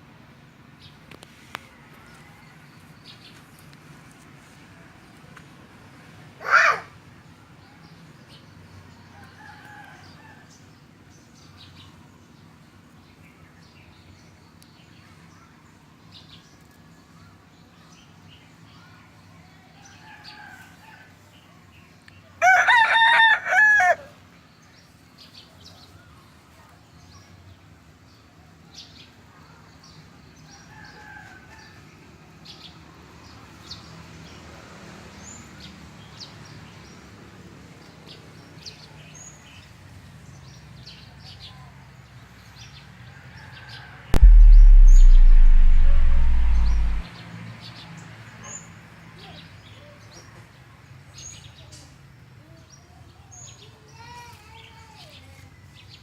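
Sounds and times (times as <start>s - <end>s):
distant rooster crows: 9.1s - 10.6s, 22.4s - 24.1s
rooster crowing: 22.4s - 24.1s.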